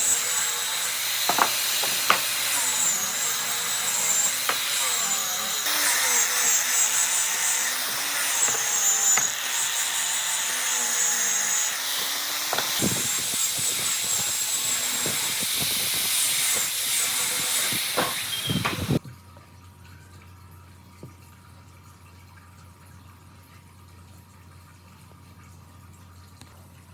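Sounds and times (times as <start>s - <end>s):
workshop tool hissing: 0.0s - 19.0s
sharp knocks and taps: 1.3s - 2.3s.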